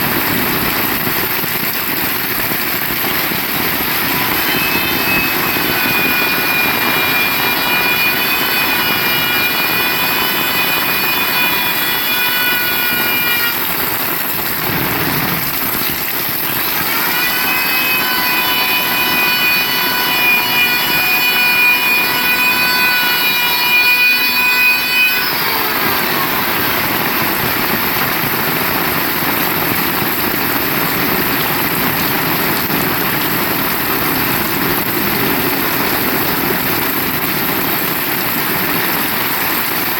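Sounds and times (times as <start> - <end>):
heavy rain: 0.0 - 9.1, 12.3 - 16.9, 25.8 - 39.9.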